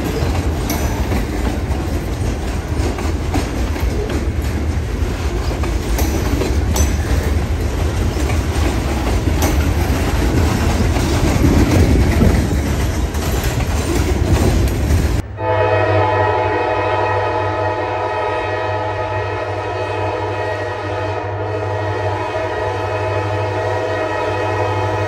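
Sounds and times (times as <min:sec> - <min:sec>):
clicks at rail joints: 0:00.0 - 0:15.2
steel wheels rumbling on rail: 0:00.0 - 0:25.0
locomotive air horn: 0:15.3 - 0:25.0.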